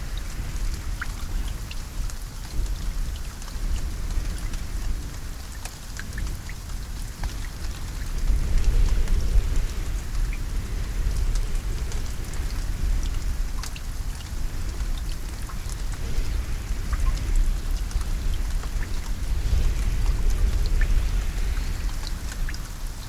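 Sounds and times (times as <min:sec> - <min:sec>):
rain drops pattering: 0:00.0 - 0:23.0
deep low rumble: 0:07.5 - 0:23.0.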